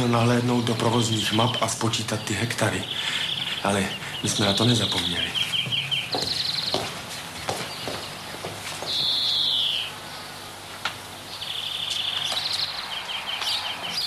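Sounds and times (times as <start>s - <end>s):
birds chirping in rapid trills: 0.0s - 14.0s.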